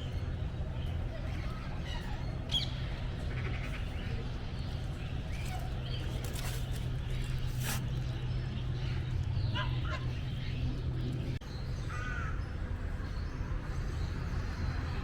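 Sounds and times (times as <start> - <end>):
steady low hum: 0.0 - 11.4
birds calling: 0.0 - 12.5.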